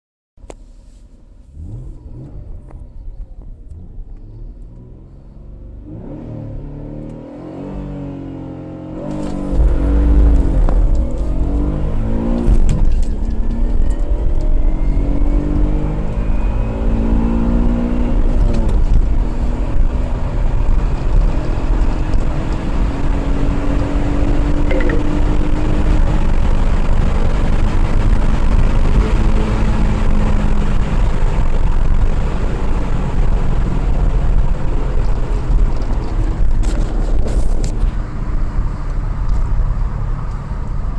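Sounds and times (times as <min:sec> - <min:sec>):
car engine accelerating: 0:00.4 - 0:40.9
loud low rumble: 0:09.3 - 0:15.4, 0:24.6 - 0:26.6.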